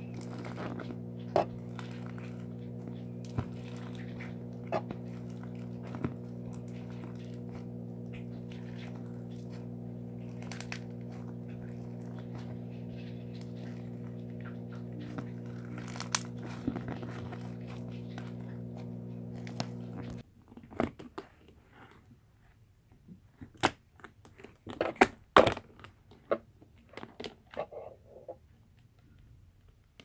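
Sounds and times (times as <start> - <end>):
faint crackling: 0.0 - 20.2
low electrical hum: 0.0 - 20.2.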